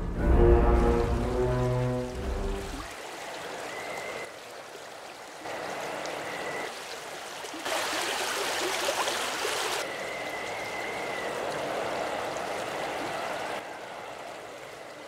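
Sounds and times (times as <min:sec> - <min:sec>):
stream running water: 0:00.1 - 0:15.0
high steady whistle: 0:09.8 - 0:11.5.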